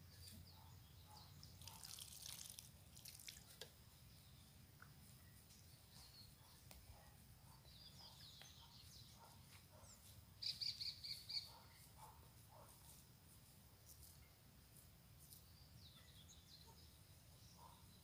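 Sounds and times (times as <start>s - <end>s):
bird chirping: 0.0s - 1.8s, 4.0s - 12.2s, 15.3s - 18.0s.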